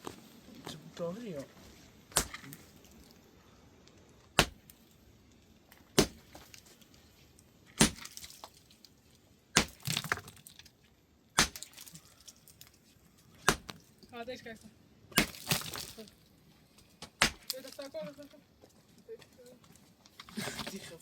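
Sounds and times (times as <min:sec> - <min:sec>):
hand tool striking hard object: 0:02.1 - 0:02.6, 0:04.4 - 0:04.6, 0:06.0 - 0:06.3, 0:07.8 - 0:08.1, 0:09.6 - 0:09.9, 0:11.4 - 0:11.7, 0:13.4 - 0:13.7, 0:15.2 - 0:15.6, 0:17.2 - 0:17.6.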